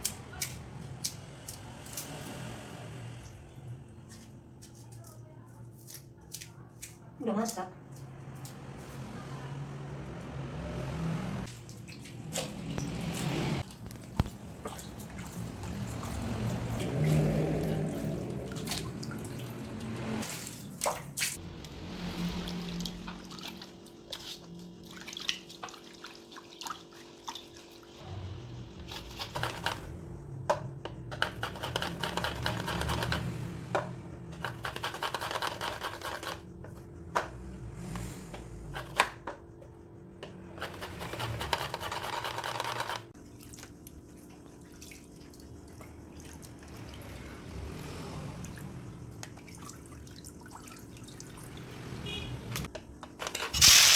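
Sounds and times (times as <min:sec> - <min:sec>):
liquid sounds: 0:11.5 - 0:28.0, 0:43.2 - 0:52.6.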